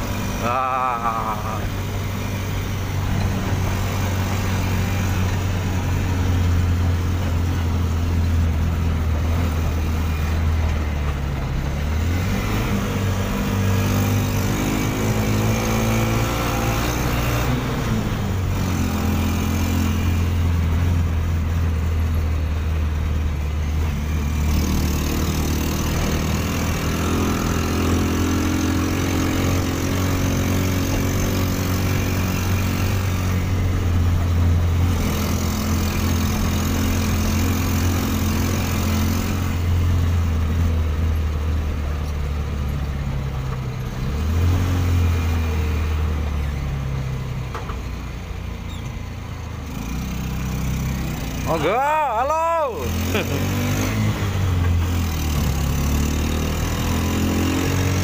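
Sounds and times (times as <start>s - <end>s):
road noise: 0.0s - 58.0s
motorbike engine running: 49.8s - 58.0s.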